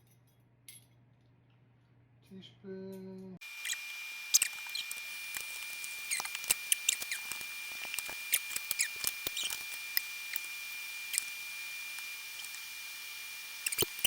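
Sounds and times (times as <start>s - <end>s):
high-pitched whine: 3.4s - 14.0s
kitchen utensils clicking and scraping: 3.6s - 12.8s, 13.6s - 14.0s.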